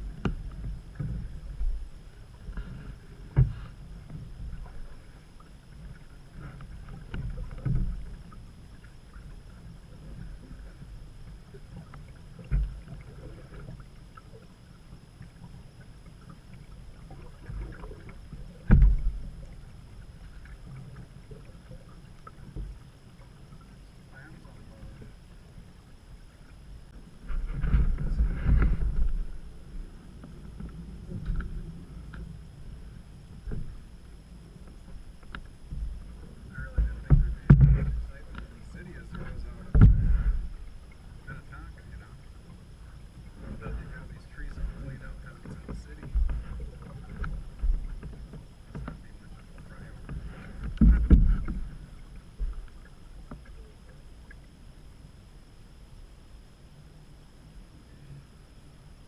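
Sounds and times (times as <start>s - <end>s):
rumble of moving water: 0.0s - 59.0s
canoe knocks: 3.3s - 3.7s, 18.6s - 19.2s, 36.6s - 40.4s, 45.4s - 51.7s
air on microphone: 27.3s - 29.4s, 42.9s - 47.9s.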